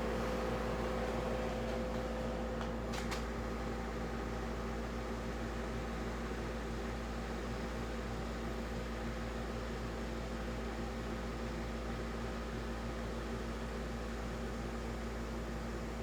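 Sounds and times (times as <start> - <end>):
air conditioner hum: 0.0 - 5.8.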